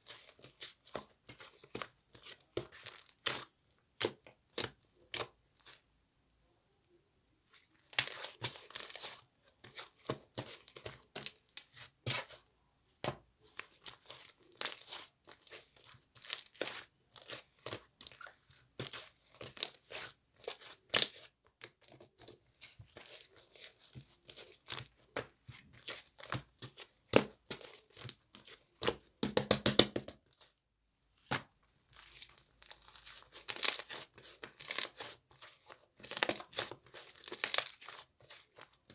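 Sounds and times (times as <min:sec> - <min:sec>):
slime tearing and crackling: 0:36.0 - 0:37.8.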